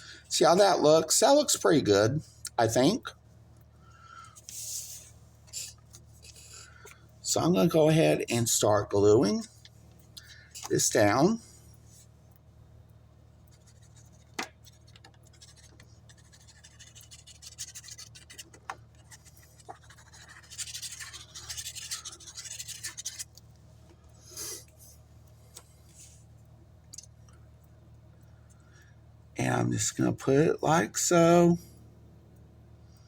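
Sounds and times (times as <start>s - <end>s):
glue rubbing on cardstock: 13.6s - 23.3s.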